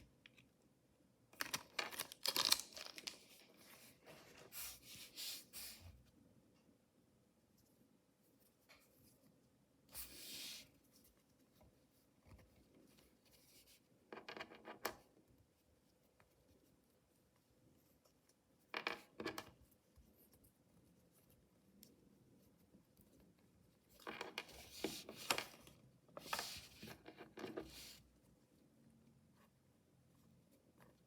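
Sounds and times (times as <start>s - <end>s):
packaging rustling and crinkling: 1.4s - 4.5s.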